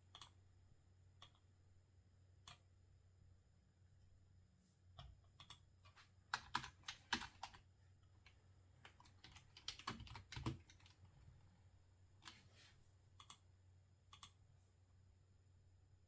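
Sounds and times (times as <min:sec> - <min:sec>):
typing on computer keyboard: 0:06.3 - 0:07.6, 0:08.2 - 0:11.1.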